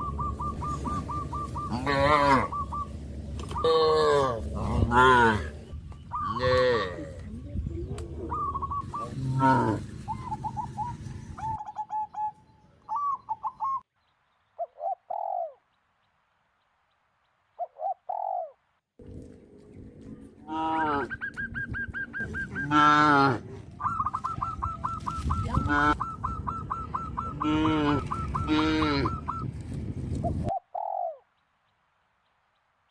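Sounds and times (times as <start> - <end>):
short repeated bird calls: 0.0 - 4.2
cattle mooing: 1.7 - 2.5, 3.6 - 5.5, 6.3 - 7.2, 9.1 - 9.9, 22.6 - 23.6, 27.4 - 29.2.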